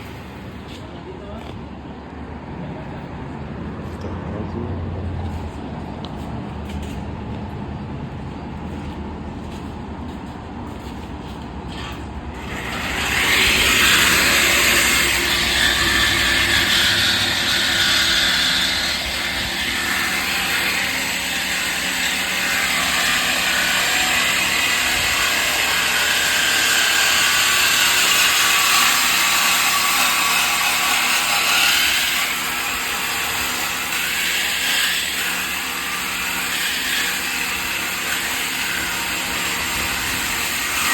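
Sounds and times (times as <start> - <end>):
power tool grinding: 11.7 - 40.9.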